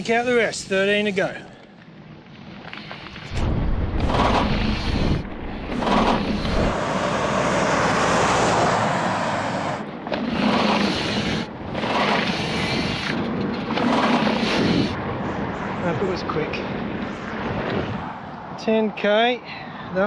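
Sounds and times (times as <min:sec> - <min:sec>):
wind buffeting microphone: 0:03.1 - 0:18.6
deep rumble: 0:03.2 - 0:10.5.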